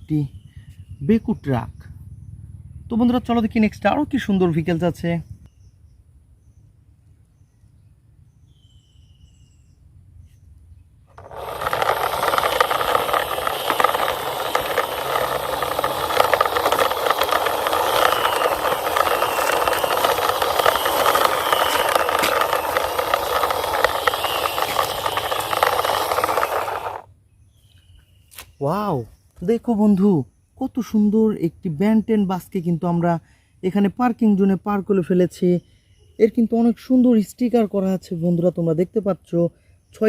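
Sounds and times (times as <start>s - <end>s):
toy wheels scraping over wall: 11.1s - 27.1s.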